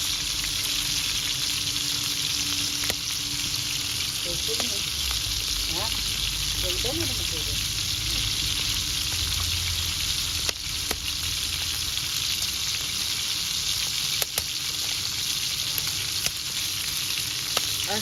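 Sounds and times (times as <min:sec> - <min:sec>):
food sizzling in oil: 0:00.0 - 0:18.0
sharp pops of frying: 0:02.5 - 0:03.6, 0:04.4 - 0:12.0, 0:12.7 - 0:18.0.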